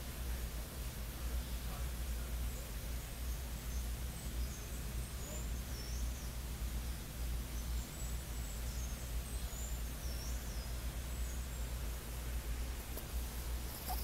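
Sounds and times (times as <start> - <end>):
steady low hum: 0.0 - 14.0
faint high-pitched bird calls: 2.5 - 11.8, 13.6 - 14.0.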